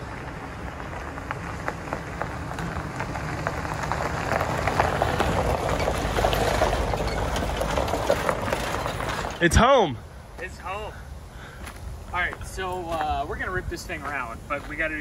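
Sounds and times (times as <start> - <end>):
rain ticking on hard surface: 0.0 - 9.4
low steady rumble: 0.0 - 15.0.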